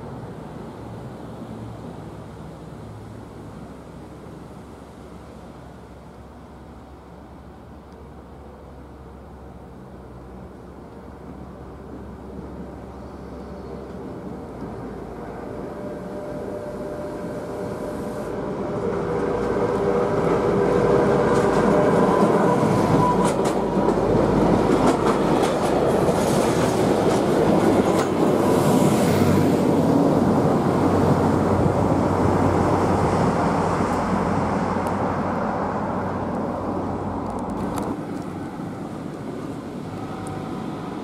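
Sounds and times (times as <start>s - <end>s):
diesel locomotive running: 9.4s - 41.0s
wheels clattering over rail joints: 19.1s - 29.4s.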